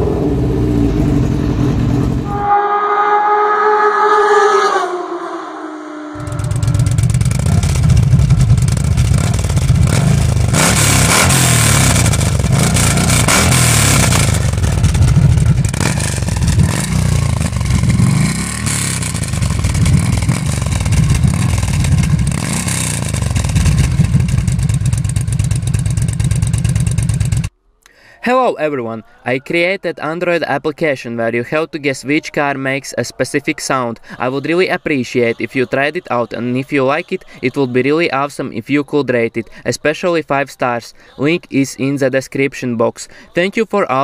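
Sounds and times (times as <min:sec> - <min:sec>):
motorcycle engine revving: 0:06.1 - 0:27.5.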